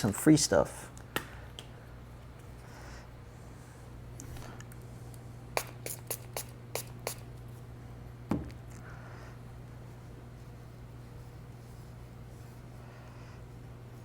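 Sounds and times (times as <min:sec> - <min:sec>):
spray bottle squirting: 0:05.6 - 0:07.3.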